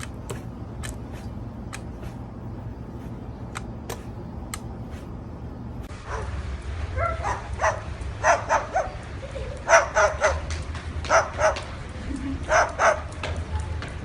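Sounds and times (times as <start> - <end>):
dog barking: 6.0 - 6.4, 7.0 - 9.0, 9.7 - 10.5, 11.1 - 11.6, 12.5 - 13.1.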